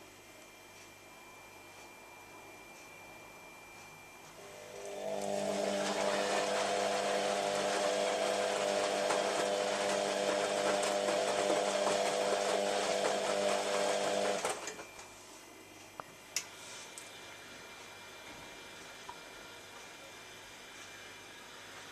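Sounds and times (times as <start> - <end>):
washing machine motor whirring: 4.4 - 14.8.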